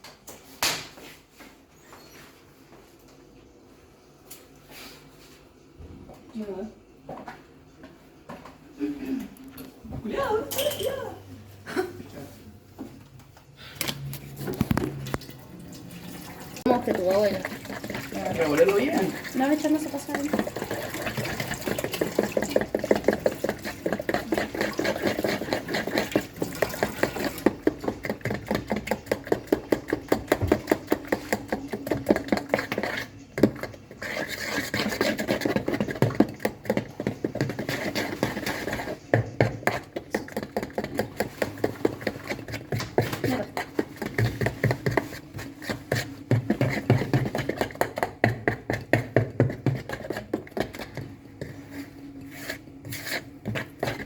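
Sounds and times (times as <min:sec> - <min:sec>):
utensil beating batter in bowl: 0:14.4 - 0:15.2, 0:15.8 - 0:54.0.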